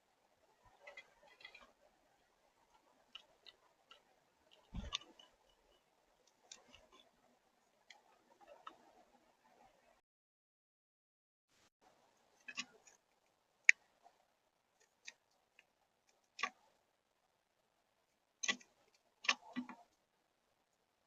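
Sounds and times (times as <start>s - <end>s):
bird beaks pecking at seed: 18.4s - 19.9s.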